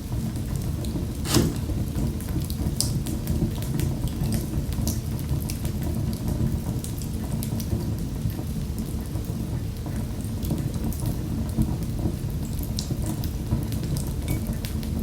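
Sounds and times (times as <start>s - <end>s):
wood fire crackling: 1.1s - 2.0s.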